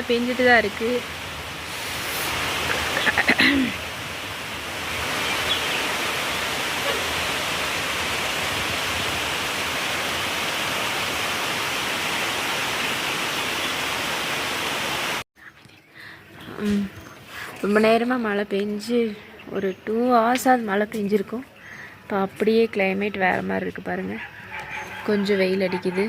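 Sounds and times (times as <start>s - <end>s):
heavy rain falling: 0.0s - 15.2s.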